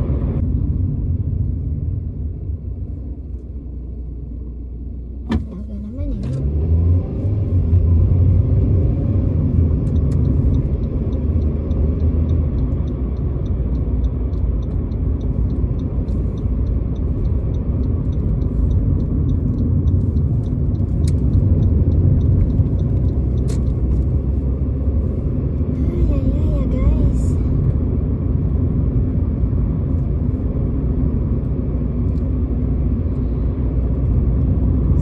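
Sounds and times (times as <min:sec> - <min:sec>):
car driving interior rumble: 0:00.0 - 0:35.0
faint regular ticking: 0:09.4 - 0:24.4.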